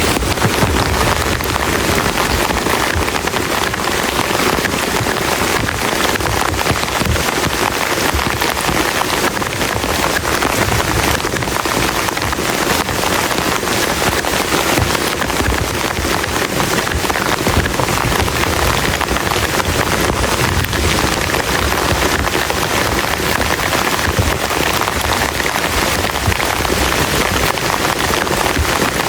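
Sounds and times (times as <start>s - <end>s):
heavy rain on plastic tarp: 0.0s - 29.0s.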